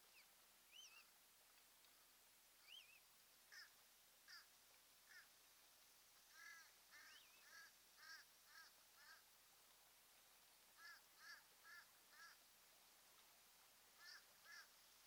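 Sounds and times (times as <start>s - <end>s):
harsh bird calls: 6.4s - 9.2s.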